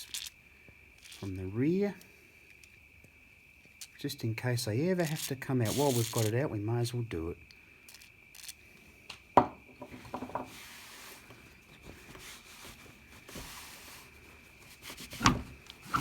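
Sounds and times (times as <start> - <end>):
faint short hisses: 5.6 - 6.3.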